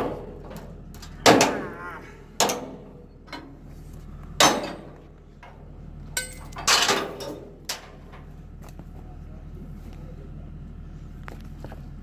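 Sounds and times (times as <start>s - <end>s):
low steady hum: 0.0s - 12.0s
metal chain clanks: 4.4s - 5.6s, 6.2s - 8.3s.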